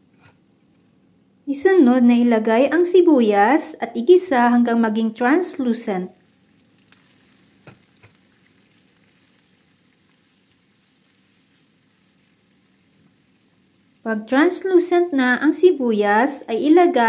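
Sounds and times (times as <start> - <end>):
onions sizzling in oil: 6.1 - 14.6.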